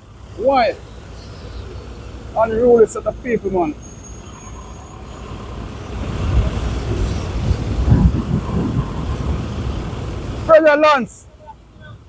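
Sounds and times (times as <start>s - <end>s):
vehicle engine and tyre noise: 0.0s - 12.0s
wind on microphone: 6.0s - 10.2s.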